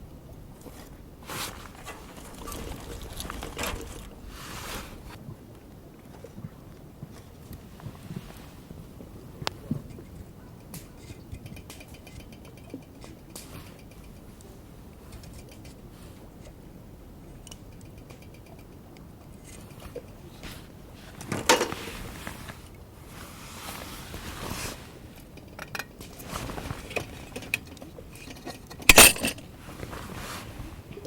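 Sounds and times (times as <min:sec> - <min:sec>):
metal gear clinking and rattling: 0:01.6 - 0:04.3, 0:27.2 - 0:29.4.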